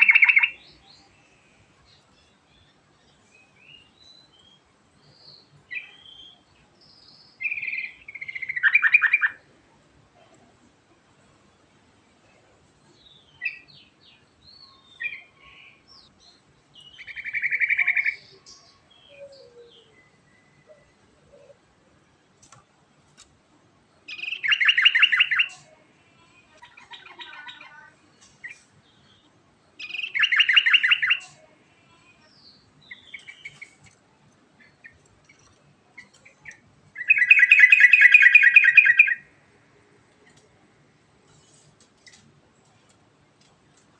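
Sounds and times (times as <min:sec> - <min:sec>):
soft bird chirps: 0:00.0 - 0:09.5, 0:12.2 - 0:21.7, 0:23.9 - 0:40.6
bird singing rolling trills: 0:00.0 - 0:09.6, 0:12.2 - 0:22.3, 0:23.8 - 0:25.8, 0:26.4 - 0:39.9.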